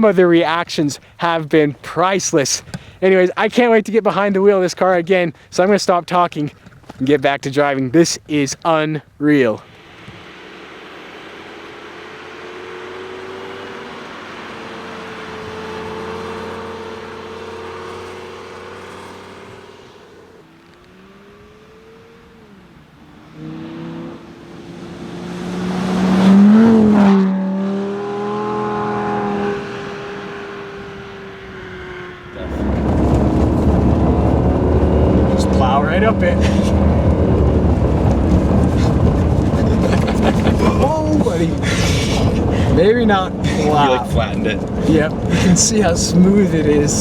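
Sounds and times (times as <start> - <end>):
road noise rush: 0.0 - 4.5, 8.2 - 47.0
sports car engine passing: 9.6 - 47.0.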